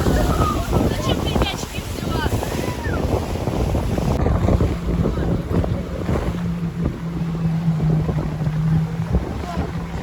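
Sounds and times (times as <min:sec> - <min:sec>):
low engine hum: 0:00.0 - 0:10.0
low rumble of engine and water: 0:00.0 - 0:10.0
wind buffeting microphone: 0:00.0 - 0:10.0.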